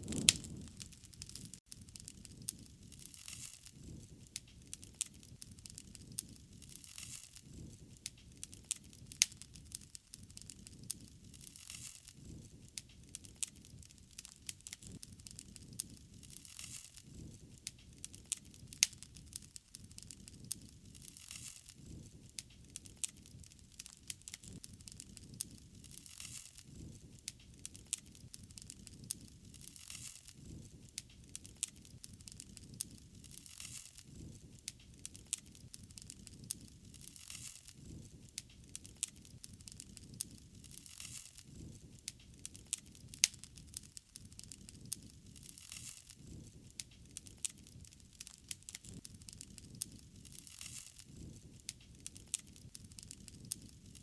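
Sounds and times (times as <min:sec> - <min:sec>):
fire pops and snaps: 0:00.0 - 0:54.0
soft fire hiss: 0:00.0 - 0:54.0
wood fire crackling: 0:00.0 - 0:54.0.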